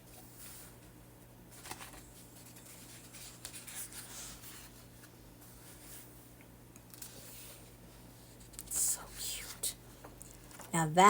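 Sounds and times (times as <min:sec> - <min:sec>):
paper pages rustling: 0:01.5 - 0:06.1, 0:06.8 - 0:08.7.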